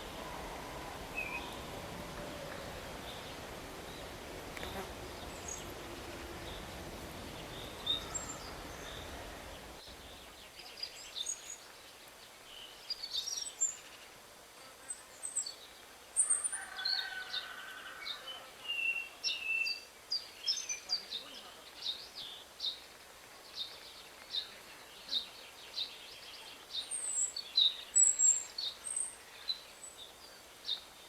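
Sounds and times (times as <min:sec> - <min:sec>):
birds chirping and trilling: 0:00.0 - 0:11.6.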